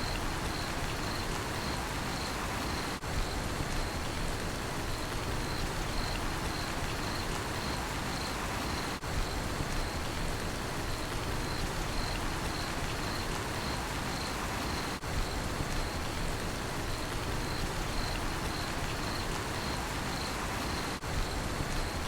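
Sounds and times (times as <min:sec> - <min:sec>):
crickets chirping: 0:00.0 - 0:04.1, 0:04.8 - 0:21.0
rain falling: 0:00.0 - 0:22.0.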